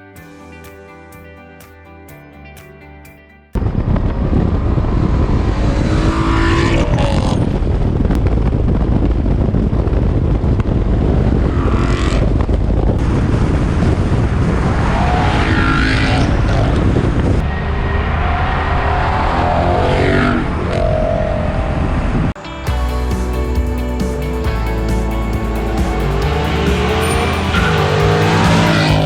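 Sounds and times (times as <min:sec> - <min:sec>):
loud deep car engine revving: 0:04.4 - 0:07.8, 0:11.0 - 0:12.4, 0:24.8 - 0:29.0.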